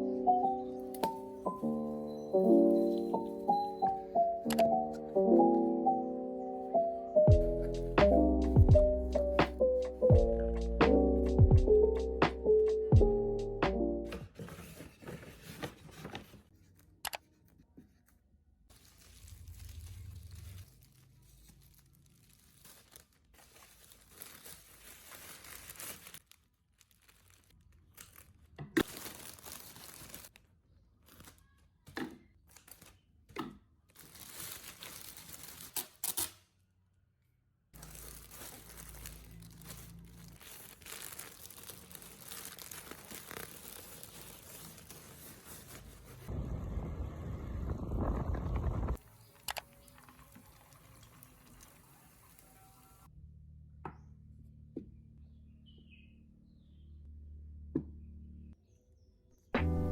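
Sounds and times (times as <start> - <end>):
packaging tearing and crinkling: 18.7 - 31.7, 32.4 - 33.1, 33.9 - 36.5, 37.8 - 46.3.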